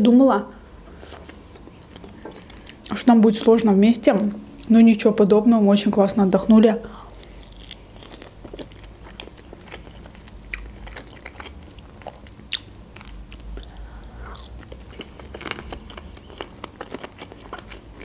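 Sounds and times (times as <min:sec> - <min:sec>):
person chewing: 0:00.6 - 0:03.0, 0:06.9 - 0:18.0.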